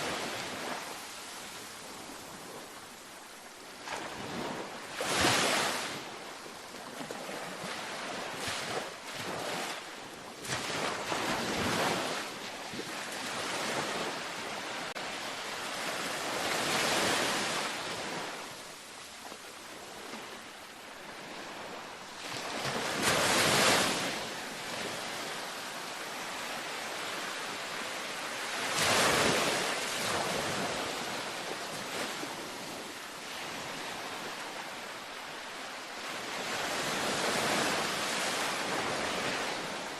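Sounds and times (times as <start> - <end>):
ocean surf on beach: 0.0 - 39.9.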